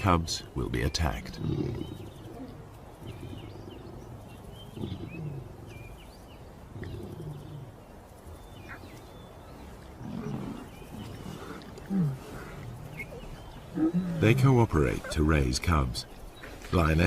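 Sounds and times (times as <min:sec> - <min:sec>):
small birds chirping: 0:00.0 - 0:17.0
lion roaring and grunting: 0:10.0 - 0:15.2.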